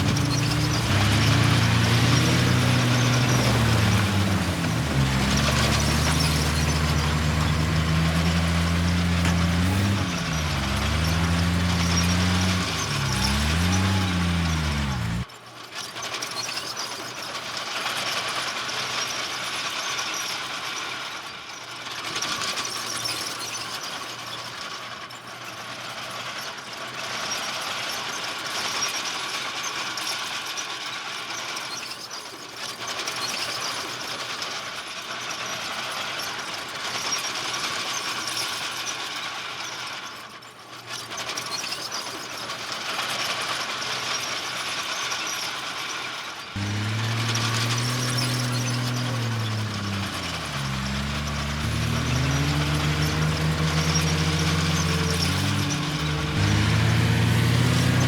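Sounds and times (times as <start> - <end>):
bulldozer tracks squealing and clattering: 0.0 - 15.3, 22.2 - 25.6, 31.6 - 34.0, 40.5 - 58.0.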